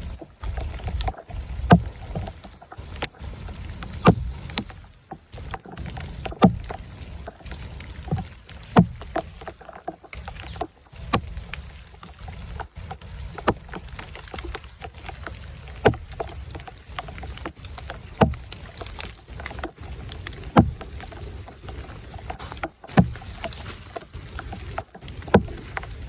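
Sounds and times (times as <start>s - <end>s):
faint clicks: 0.0s - 26.0s
sharp knocks: 6.4s - 6.8s, 8.1s - 9.3s, 18.2s - 18.6s, 20.6s - 20.9s, 22.5s - 23.2s, 25.3s - 25.6s.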